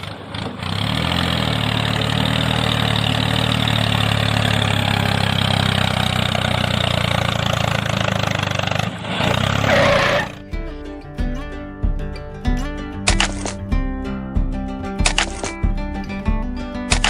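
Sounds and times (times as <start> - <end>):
engine idling: 0.0 - 9.7.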